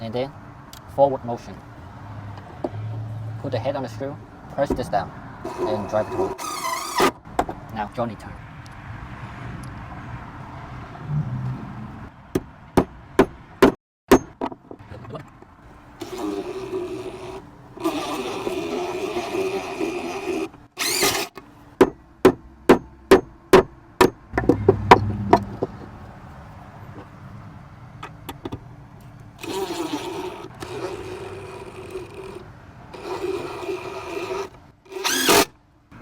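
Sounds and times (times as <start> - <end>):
impact driver driving screw: 5.5 - 7.2, 16.0 - 21.4, 29.4 - 32.4, 33.0 - 35.5.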